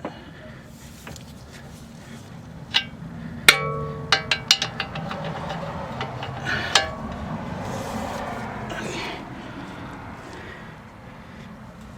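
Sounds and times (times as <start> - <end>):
metal tools clanking: 2.6 - 9.0
light metal clinks: 2.7 - 7.3
loud metallic clang: 2.7 - 7.6.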